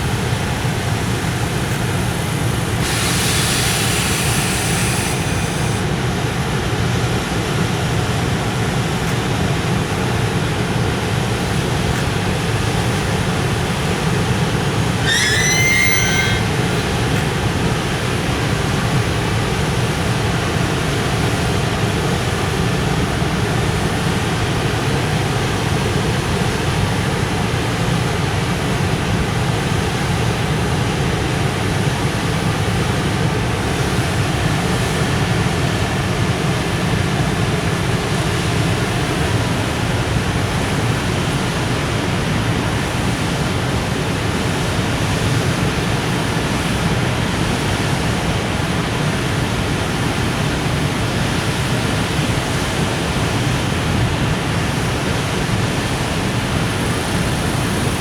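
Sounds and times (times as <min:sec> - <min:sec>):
high squeal: 0:00.0 - 0:05.9, 0:14.8 - 0:17.9
train wheels rumbling on rails: 0:08.8 - 0:22.0.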